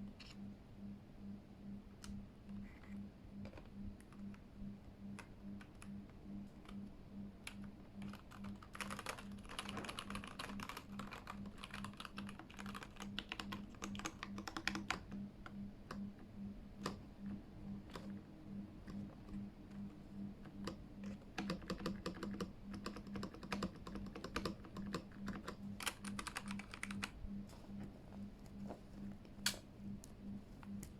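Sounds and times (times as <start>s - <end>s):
mechanical keyboard typing: 5.2s - 27.2s.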